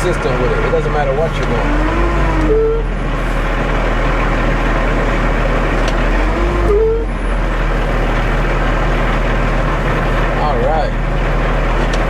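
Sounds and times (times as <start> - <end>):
truck diesel engine running: 0.0 - 12.0
rising squeak-like tone: 1.5 - 3.1, 6.2 - 7.3.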